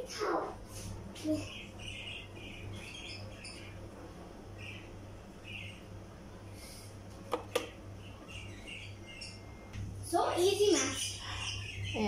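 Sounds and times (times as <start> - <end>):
low steady hum: 0.0 - 12.0
high bird chirps: 1.3 - 3.8, 4.6 - 5.9, 7.6 - 9.7, 10.7 - 12.0.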